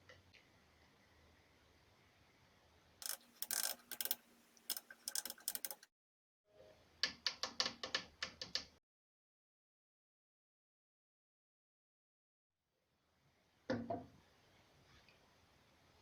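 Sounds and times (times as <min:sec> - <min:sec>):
mechanical ratchet clicks: 0:03.0 - 0:05.9.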